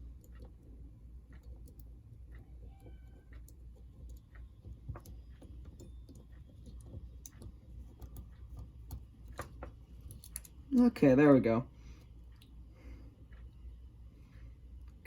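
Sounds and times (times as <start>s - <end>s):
small parts clicking and tapping: 0.0s - 10.9s
low steady hum: 0.0s - 15.0s.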